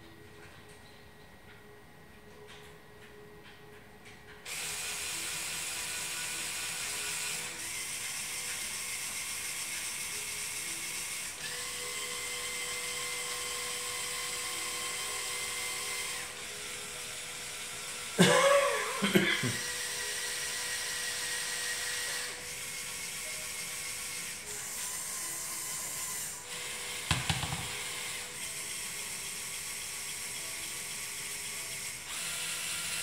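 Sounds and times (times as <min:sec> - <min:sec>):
servo motors whirring: 0:19.6 - 0:33.0.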